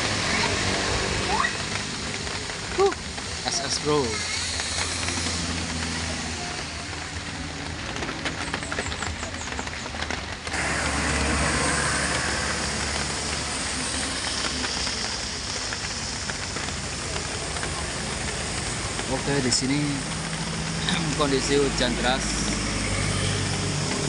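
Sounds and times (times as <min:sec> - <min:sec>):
heavy rain hissing: 0:00.0 - 0:24.0
truck engine running: 0:00.0 - 0:24.0
deep rumble: 0:04.2 - 0:24.0.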